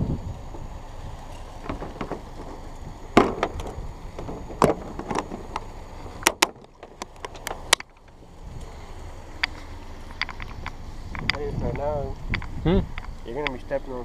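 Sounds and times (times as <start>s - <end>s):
sharp knocks and clicks: 1.6s - 2.6s, 3.2s - 8.2s.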